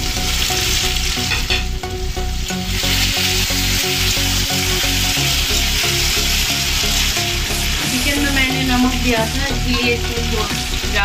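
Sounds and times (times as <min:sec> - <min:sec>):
background music: 0:00.0 - 0:11.0
vegetables sizzling in oil: 0:00.0 - 0:11.0.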